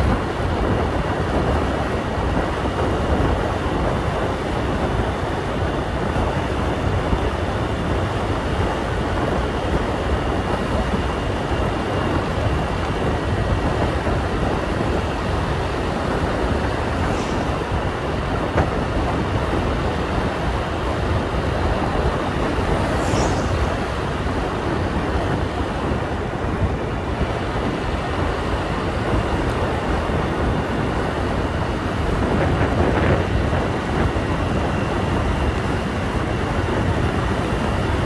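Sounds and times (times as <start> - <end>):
wind on microphone: 0.0 - 38.0
brief high-pitched sound: 22.8 - 24.5.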